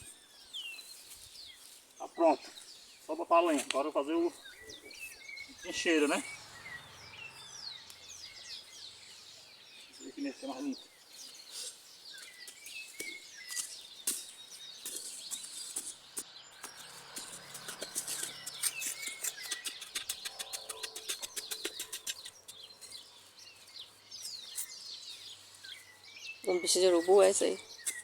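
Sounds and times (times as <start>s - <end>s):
small birds chirping: 0.0s - 28.0s
rapid short clicks: 17.9s - 22.6s.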